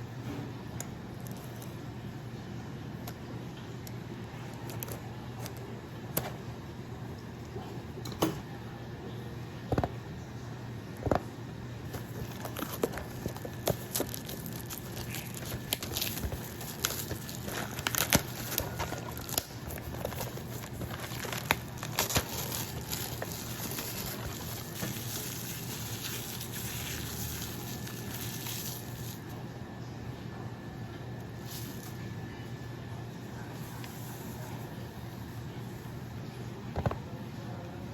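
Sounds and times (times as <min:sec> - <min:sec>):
packaging crinkling: 0:11.9 - 0:29.4.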